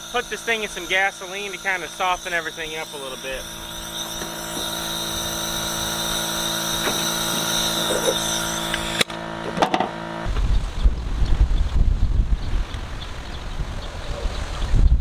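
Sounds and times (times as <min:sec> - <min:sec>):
machine hum with high whine: 0:00.0 - 0:15.0
wind rumble on microphone: 0:10.2 - 0:15.0.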